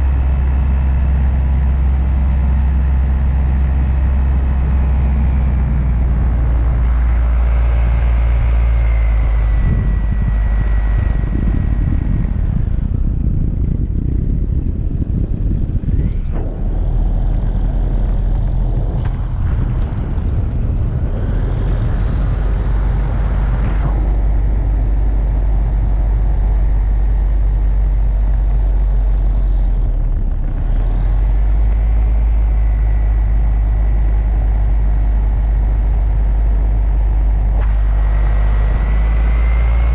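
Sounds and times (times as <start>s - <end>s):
engine running: 0.0s - 39.9s
heavy low rumble: 0.0s - 39.9s.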